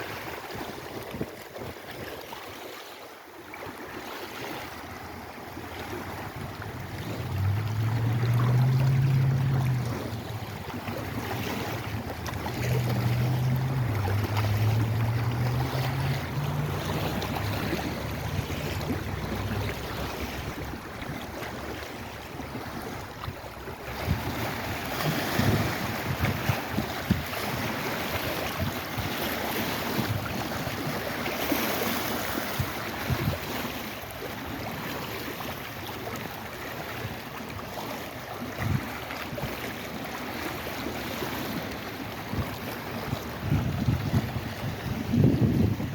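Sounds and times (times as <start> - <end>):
water washing in waves: 0.0 - 45.9
wind: 0.0 - 45.9
water slaps: 5.5 - 45.9
low wavering hum: 6.8 - 23.9.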